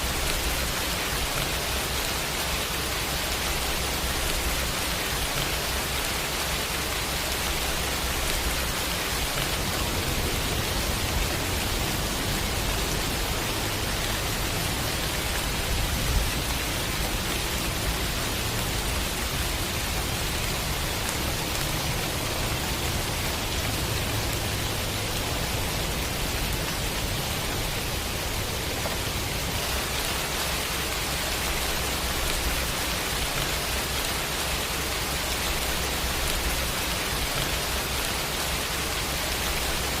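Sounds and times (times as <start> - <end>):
dense rain hissing: 0.0 - 40.0.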